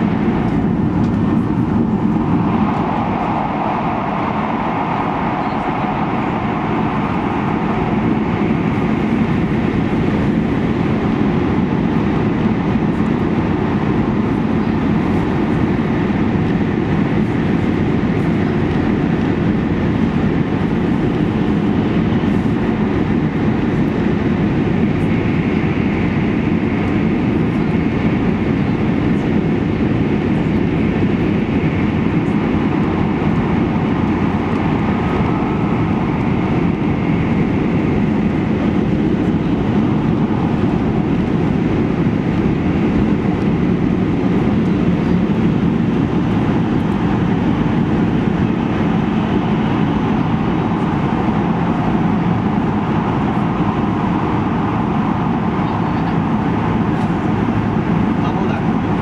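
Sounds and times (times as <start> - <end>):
train cabin low rumble: 0.0 - 59.0.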